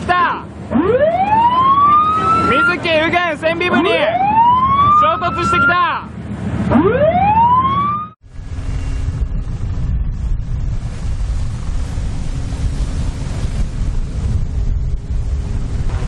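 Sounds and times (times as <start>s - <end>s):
rising siren-like tone: 0.7s - 2.8s, 4.1s - 5.8s, 6.7s - 9.7s
low rumble: 6.1s - 16.0s
wind buffeting microphone: 8.2s - 16.0s.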